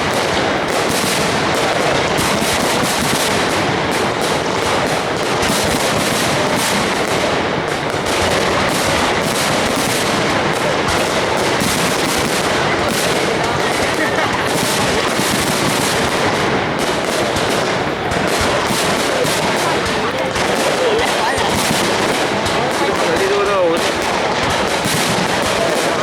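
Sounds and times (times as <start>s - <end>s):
fireworks bangs and crackle: 0.0s - 26.0s.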